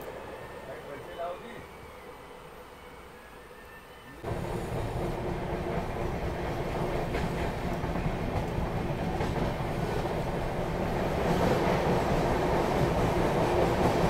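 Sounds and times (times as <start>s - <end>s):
train wheels rumbling on rails: 4.2s - 14.0s
rail-joint clicks: 6.6s - 10.0s.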